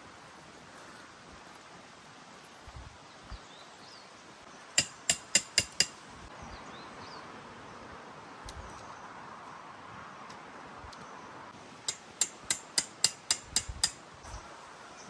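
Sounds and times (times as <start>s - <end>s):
hammer striking metal: 4.8s - 6.0s, 11.9s - 14.0s.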